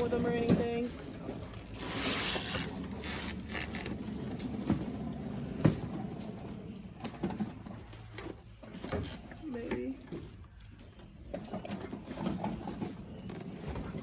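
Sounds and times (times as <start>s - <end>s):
cardboard boxes rustling and scraping: 0.0s - 6.3s.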